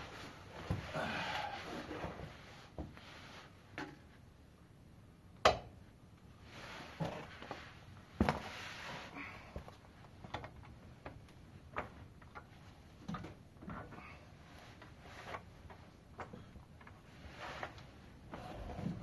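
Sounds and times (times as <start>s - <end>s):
scraping and rubbing: 17.0s - 19.0s.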